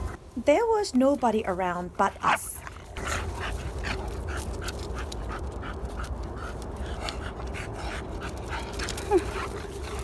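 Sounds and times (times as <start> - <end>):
dog panting rapidly: 2.2 - 10.0.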